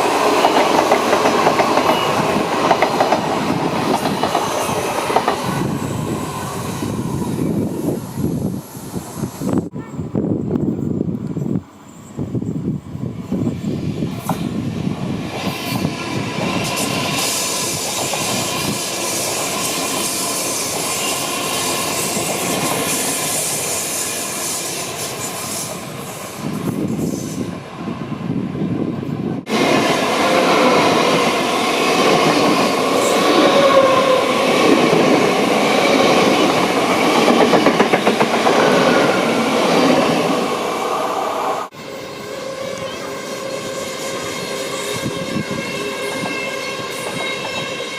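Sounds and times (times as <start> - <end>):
electric trains running on track: 0.0 - 47.9.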